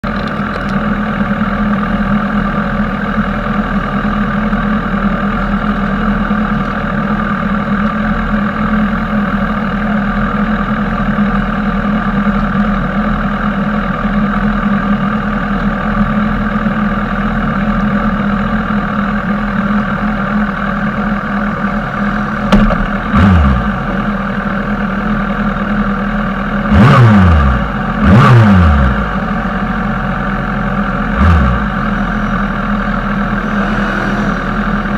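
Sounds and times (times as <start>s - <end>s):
motorcycle engine running: 0.0s - 34.9s
motorcycles passing fast: 33.2s - 34.9s.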